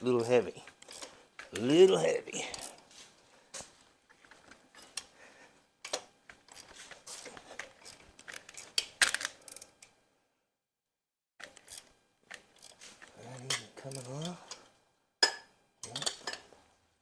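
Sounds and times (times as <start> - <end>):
wrench clicking against bolts: 13.4 - 14.6.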